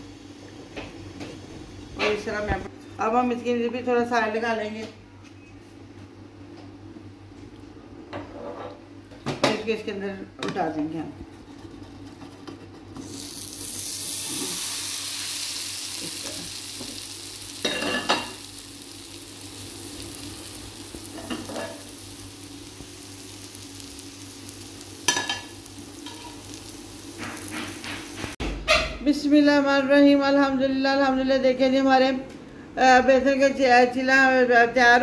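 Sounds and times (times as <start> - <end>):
pancake sizzling in a pan: 13.0 - 28.4.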